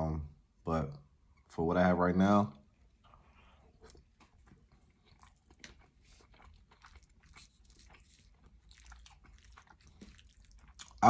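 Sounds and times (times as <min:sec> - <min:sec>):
person chewing food: 0:02.7 - 0:11.0.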